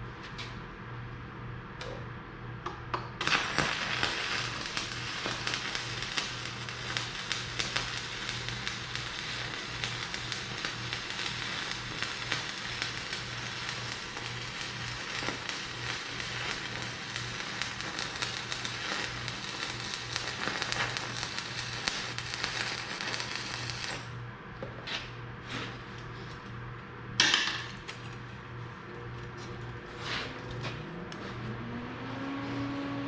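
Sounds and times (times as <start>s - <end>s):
welding arc crackling: 3.2s - 24.1s.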